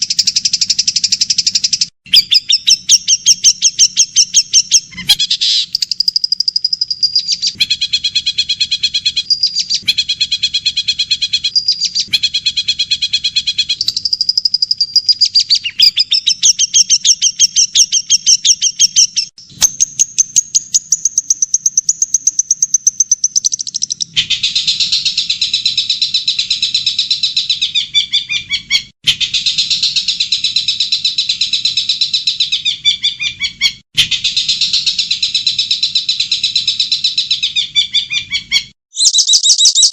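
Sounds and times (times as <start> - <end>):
songbird trilling: 0.0 - 7.8, 13.4 - 24.2, 37.4 - 39.9.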